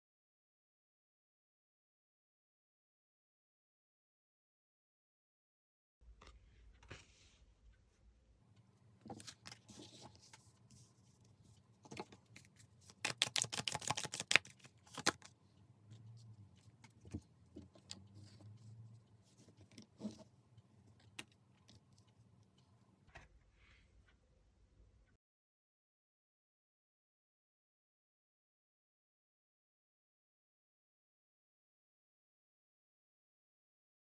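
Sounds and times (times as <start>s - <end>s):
cards being shuffled: 11.8s - 15.3s
rapid card clicks: 12.9s - 15.3s.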